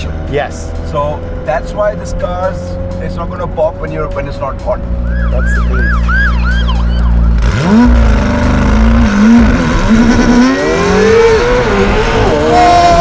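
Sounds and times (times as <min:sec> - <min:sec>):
sports car engine revving: 0:00.0 - 0:13.0.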